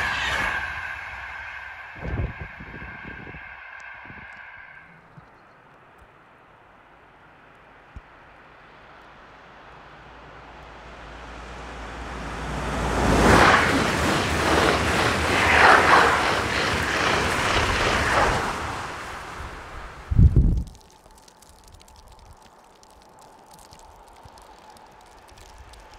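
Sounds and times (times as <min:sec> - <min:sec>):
electric train passing at speed: 0:00.0 - 0:20.2.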